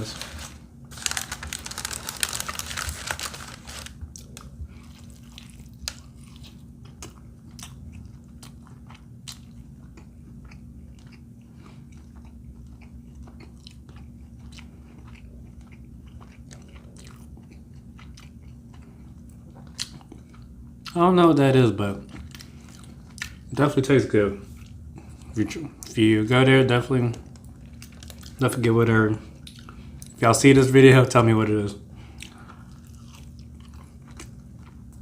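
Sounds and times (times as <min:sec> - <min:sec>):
crinkling rustle: 0:00.0 - 0:04.5
low steady hum: 0:00.0 - 0:35.0
person chewing food: 0:00.9 - 0:21.0, 0:22.1 - 0:23.5, 0:27.2 - 0:28.4, 0:29.2 - 0:30.2, 0:32.0 - 0:35.0.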